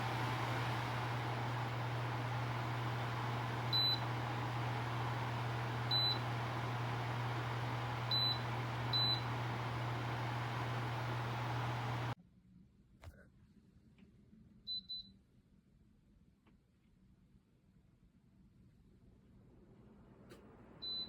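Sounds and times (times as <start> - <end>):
tower fan running: 0.0 - 12.2.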